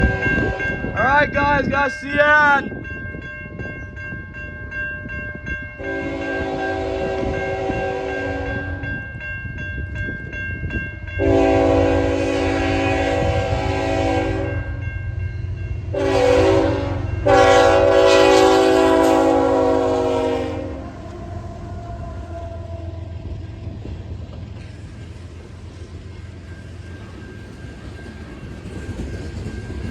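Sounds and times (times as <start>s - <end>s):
locomotive air horn blasts: 0.0s - 0.7s, 5.8s - 8.8s, 11.2s - 14.7s, 15.9s - 22.9s
crossing warning bell ringing: 0.0s - 24.0s, 24.6s - 29.9s
train rumble: 0.0s - 29.9s.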